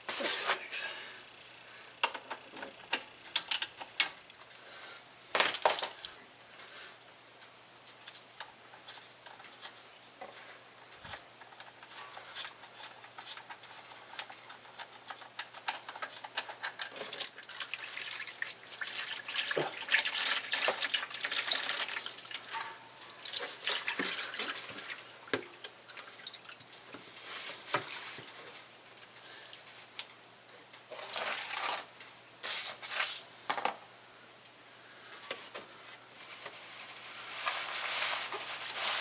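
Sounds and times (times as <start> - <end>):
oil splashing into drain pan: 17.1 - 25.0.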